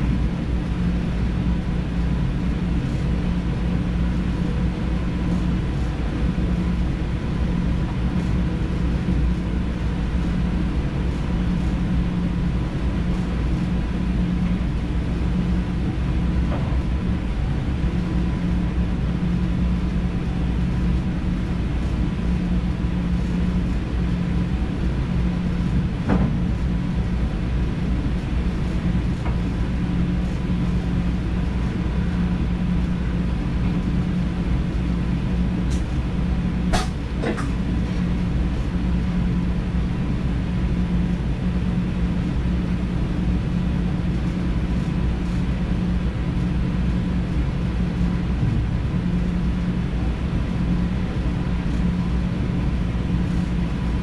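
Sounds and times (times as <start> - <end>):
faint constant whine: 0.0 - 54.0
train wheels rumbling on rails: 36.6 - 38.1.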